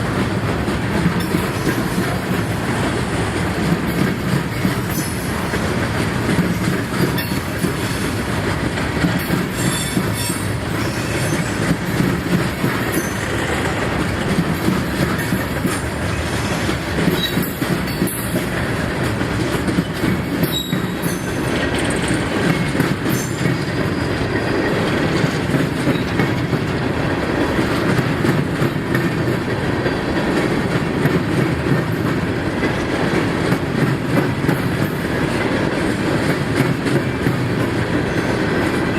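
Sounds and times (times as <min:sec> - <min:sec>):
freight train rumbling past: 0:00.0 - 0:38.9
wheel squeals: 0:20.4 - 0:21.3, 0:23.1 - 0:24.7.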